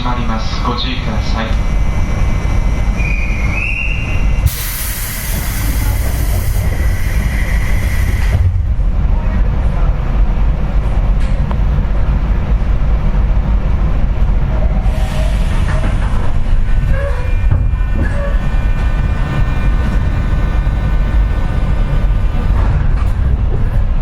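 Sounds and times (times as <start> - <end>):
train car low rumble: 0.0 - 24.0
compressed air hissing of doors: 4.4 - 8.6, 14.8 - 22.7.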